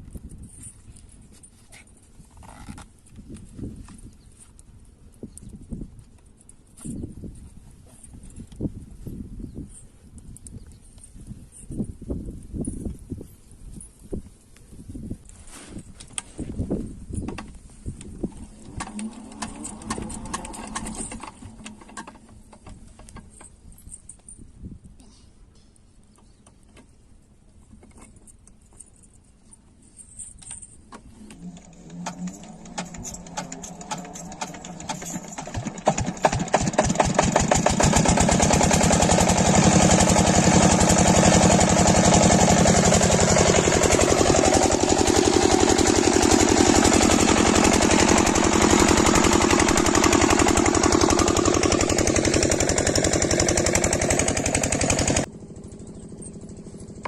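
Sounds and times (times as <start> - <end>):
diesel pump engine starting up: 18.1 - 22.5, 31.1 - 57.0.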